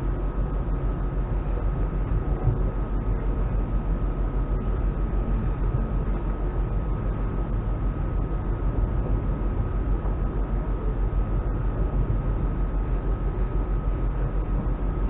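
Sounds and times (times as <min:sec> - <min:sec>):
faint high whine: 0:00.0 - 0:15.0
wheels rumbling on rails: 0:00.0 - 0:15.0.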